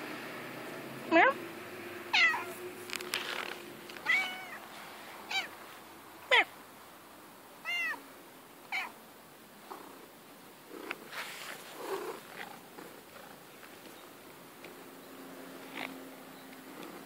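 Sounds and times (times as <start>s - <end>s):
cat meowing: 2.1s - 2.6s, 4.0s - 4.6s, 5.3s - 5.5s, 7.6s - 8.0s, 8.7s - 9.0s.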